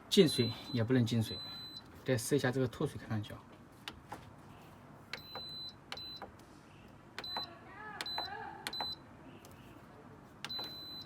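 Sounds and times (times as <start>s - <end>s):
control panel buttons clicking: 5.1s - 6.4s, 7.2s - 9.6s, 10.4s - 11.0s.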